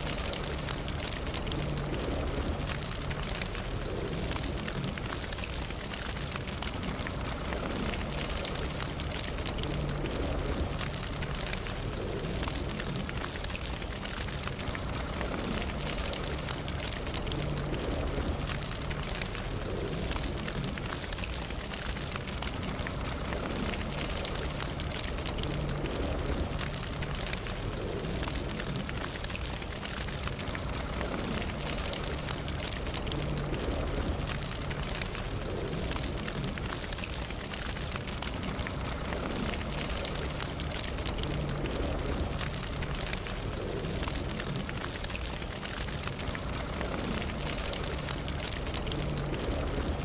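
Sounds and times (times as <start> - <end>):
burning wood crackling and popping: 0.0 - 50.0
campfire flames rushing: 0.0 - 50.0.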